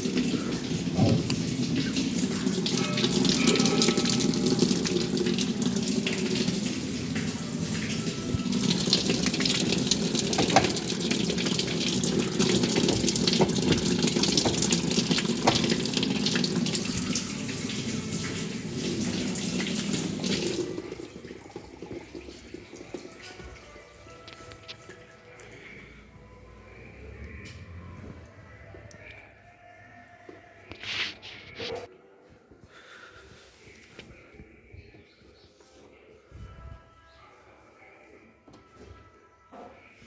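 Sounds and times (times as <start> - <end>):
water running into washing machine: 0.0 - 24.2.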